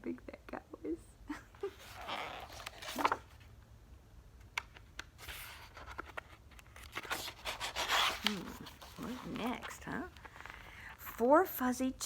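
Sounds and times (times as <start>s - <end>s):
book pages rustling: 1.7s - 3.5s, 4.6s - 11.2s.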